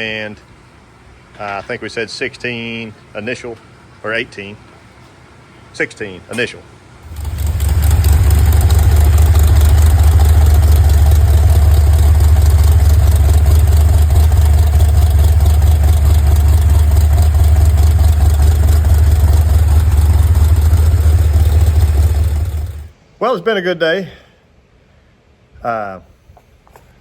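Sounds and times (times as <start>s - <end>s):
engine idling: 7.0s - 23.0s.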